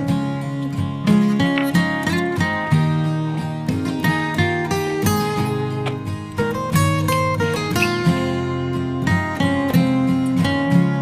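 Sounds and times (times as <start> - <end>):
plucked acoustic guitar: 0.0 - 11.0.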